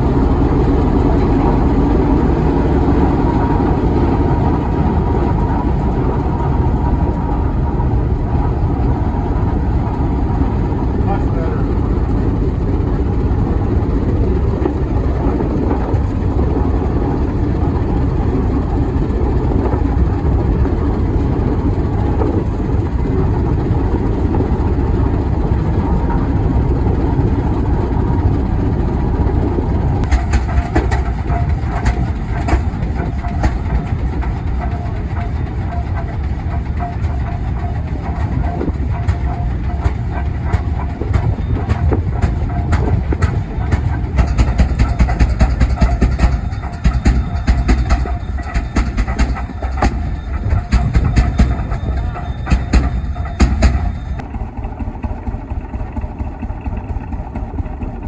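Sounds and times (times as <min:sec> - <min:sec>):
low rumble of heavy machinery: 0:00.0 - 0:58.0
rapid clatter: 0:30.0 - 0:54.3.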